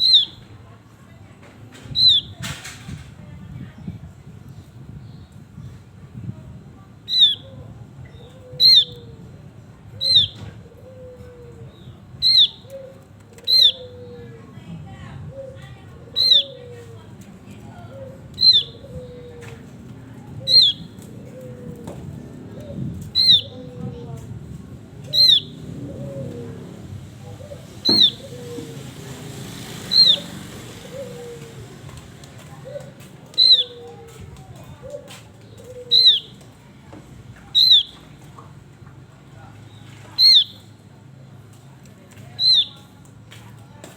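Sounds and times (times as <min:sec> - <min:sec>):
high downward-sliding bird calls: 0:16.2 - 0:16.6, 0:18.4 - 0:18.9, 0:20.5 - 0:20.8, 0:27.8 - 0:28.9, 0:29.7 - 0:31.5, 0:33.4 - 0:33.8, 0:35.9 - 0:36.3, 0:37.6 - 0:38.0, 0:40.2 - 0:40.6.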